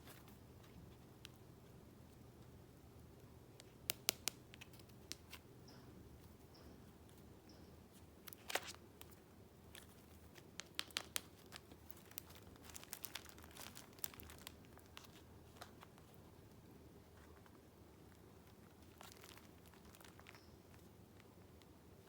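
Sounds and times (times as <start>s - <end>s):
paper crinkling and crackling: 0.0s - 1.4s, 8.2s - 16.3s, 17.2s - 21.3s.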